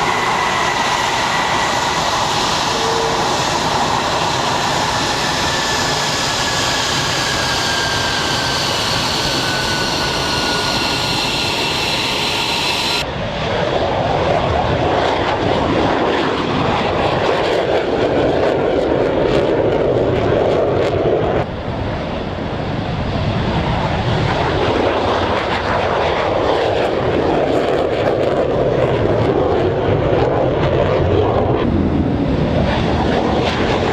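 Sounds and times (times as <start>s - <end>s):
jet engine roar and whine: 0.0s - 33.9s.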